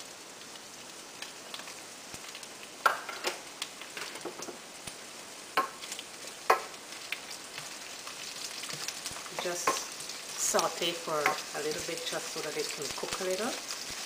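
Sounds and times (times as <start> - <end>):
carrots sizzling in oil: 0.0 - 14.0
wooden spoon stirring in a pan: 5.6 - 14.0.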